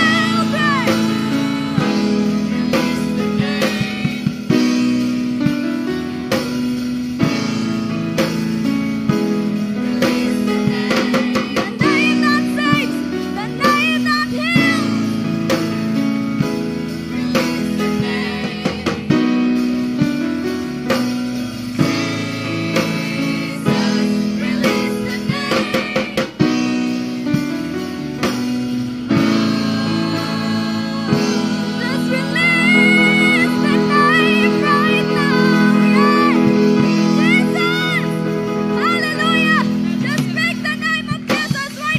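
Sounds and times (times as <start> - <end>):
voices singing: 0.0 - 5.2, 9.6 - 15.0, 17.0 - 19.6, 21.8 - 26.7, 29.0 - 41.9
drum kit: 0.0 - 41.9
guitar: 0.0 - 41.9
worship song by a band: 0.0 - 41.9.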